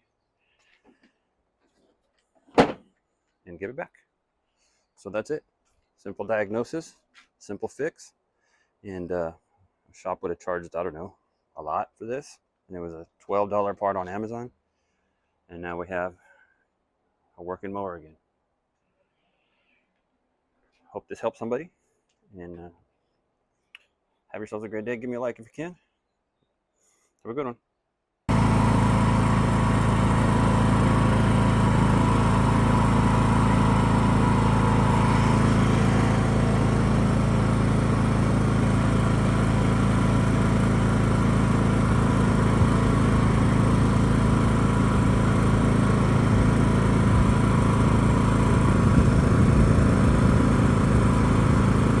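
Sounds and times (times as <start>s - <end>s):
riding mower engine running: 28.3s - 52.0s.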